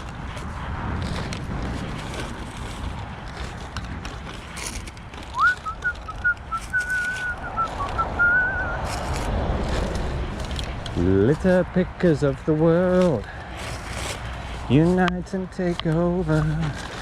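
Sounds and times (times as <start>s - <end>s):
road traffic rumble: 0.0s - 17.0s
rustles and clicks: 0.0s - 17.0s
person whistling a tune: 5.4s - 8.8s.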